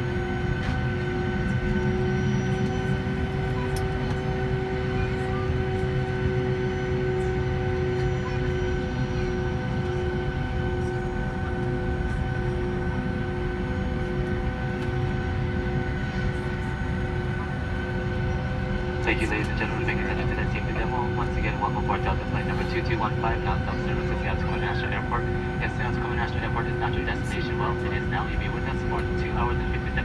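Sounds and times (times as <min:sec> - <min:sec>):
airliner cabin rumble and whine: 0:00.0 - 0:30.0.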